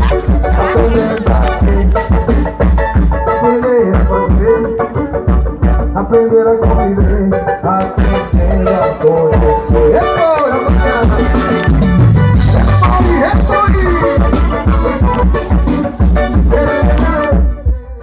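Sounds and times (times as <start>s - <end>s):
lead voice singing: 0.0s - 17.6s
driving percussion beat: 0.0s - 17.8s.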